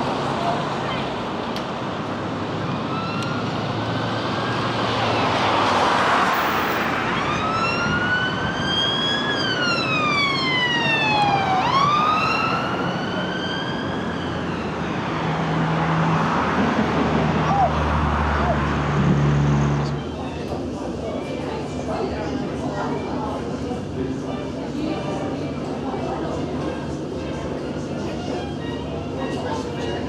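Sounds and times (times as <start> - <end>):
steady background noise: 0.0 - 30.0
siren wailing: 2.6 - 3.6, 7.0 - 15.0.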